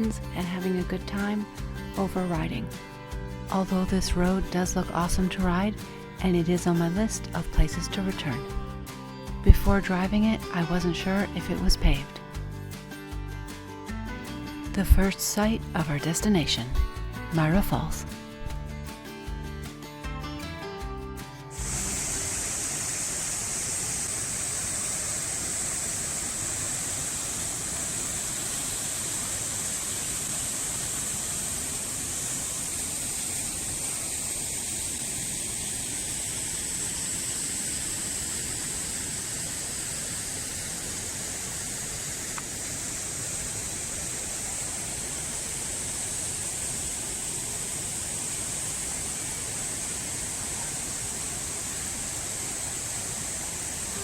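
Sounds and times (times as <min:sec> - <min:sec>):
hiss of spray: 0:21.5 - 0:54.0
waterfall roaring: 0:21.5 - 0:54.0.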